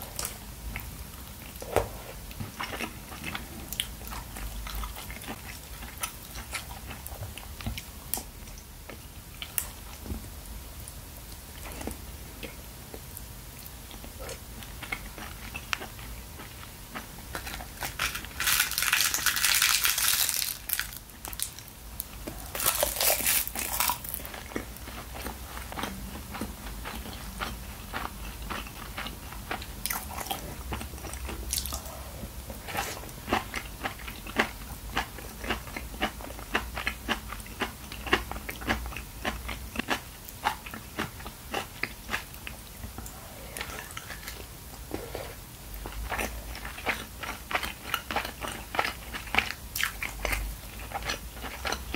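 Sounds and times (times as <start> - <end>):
wet chewing clicks and crackles: 11.5 - 31.9, 32.6 - 44.4, 45.7 - 51.9.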